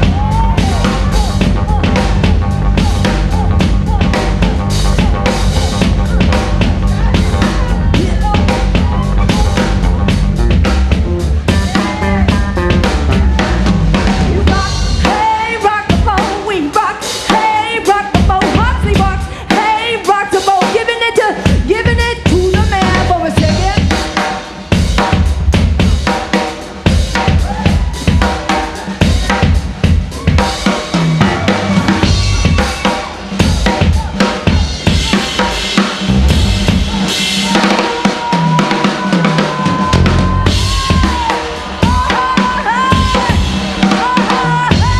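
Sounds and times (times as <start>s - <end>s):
drum kit beat: 0.0s - 44.9s
live band playing: 0.0s - 44.9s.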